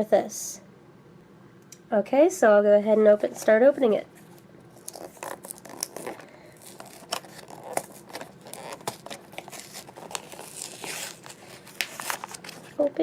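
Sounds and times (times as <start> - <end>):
packaging being torn open: 4.7 - 12.8.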